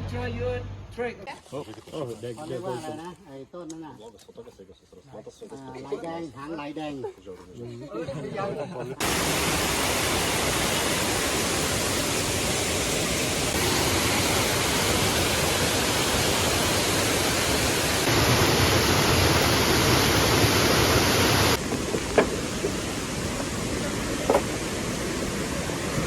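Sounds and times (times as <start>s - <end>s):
waterfall roaring: 9.0s - 26.0s.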